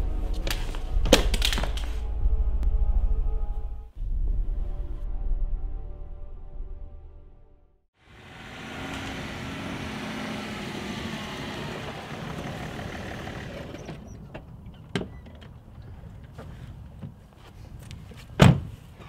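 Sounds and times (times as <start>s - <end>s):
car running: 8.0s - 14.8s.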